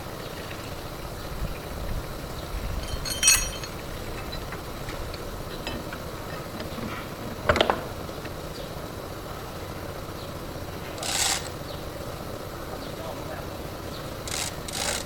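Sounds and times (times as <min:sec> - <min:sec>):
low steady rumble: 0:00.0 - 0:14.1
metal clinks: 0:02.8 - 0:04.4.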